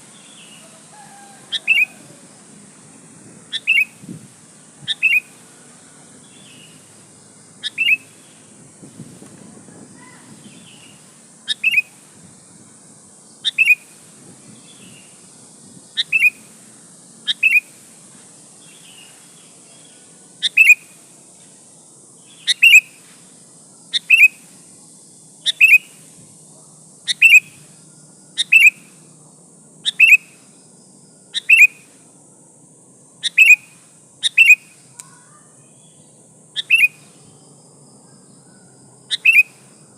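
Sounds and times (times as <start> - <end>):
bird calling double notes: 0.3 - 2.2, 3.5 - 4.0, 4.8 - 5.4, 7.6 - 8.1, 36.6 - 37.0, 39.1 - 39.6.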